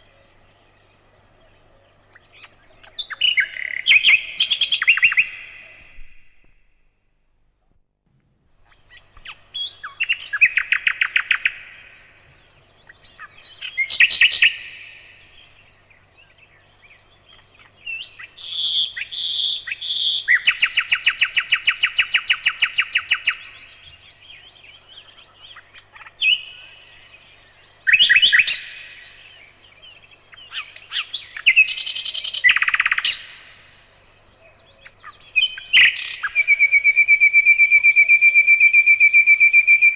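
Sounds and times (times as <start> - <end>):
nightingale singing: 0.0 - 6.7, 8.5 - 39.9.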